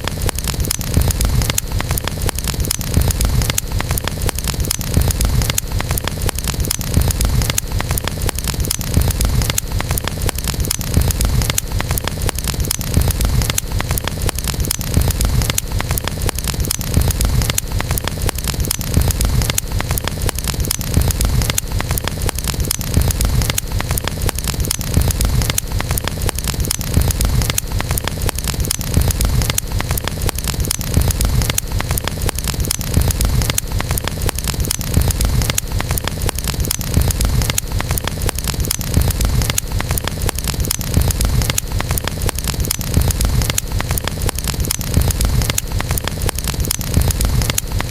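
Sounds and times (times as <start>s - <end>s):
campfire crackling: 0.0s - 47.9s
low fire rumble: 0.0s - 47.9s.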